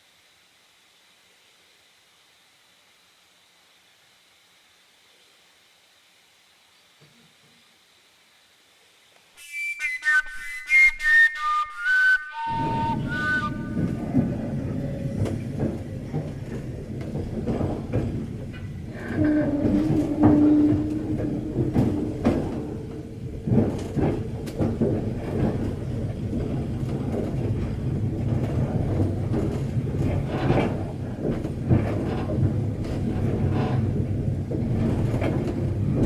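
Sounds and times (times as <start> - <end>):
train rumbling along track: 11.5 - 36.0
wheels knocking over rail joints: 12.5 - 36.0.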